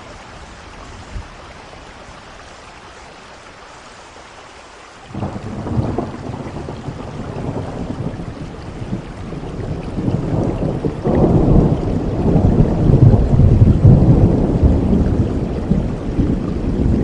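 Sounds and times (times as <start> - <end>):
steady rain: 0.0 - 17.0
deep rumble of thunder: 5.1 - 17.0.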